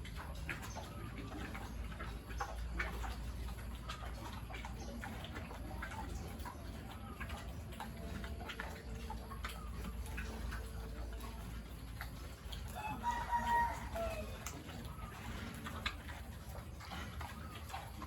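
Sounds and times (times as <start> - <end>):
rooster crowing: 12.7 - 14.5.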